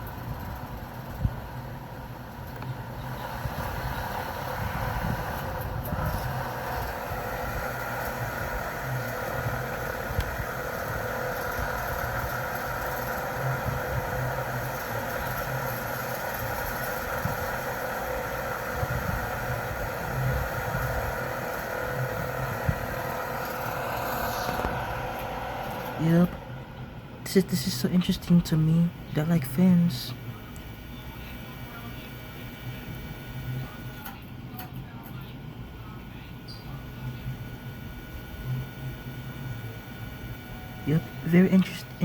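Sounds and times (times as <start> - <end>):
electric fan whirring: 0.0 - 42.0.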